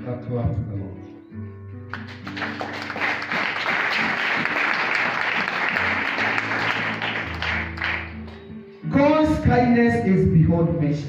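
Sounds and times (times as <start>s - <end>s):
congregation clapping: 1.9s - 8.5s.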